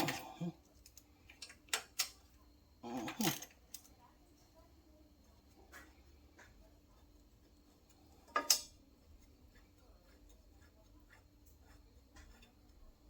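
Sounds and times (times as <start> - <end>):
hand tools and metal parts clicking: 0.0 - 4.0, 7.9 - 13.0.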